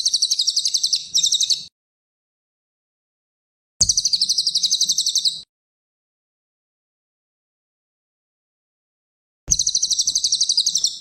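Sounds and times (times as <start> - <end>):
bird trilling song: 0.0 - 1.7, 3.8 - 5.5, 9.5 - 11.0.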